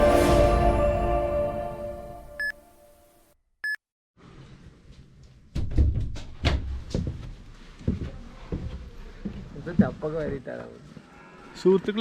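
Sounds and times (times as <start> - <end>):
music: 0.0 - 2.4
sharp knocks and thumps: 5.5 - 8.8.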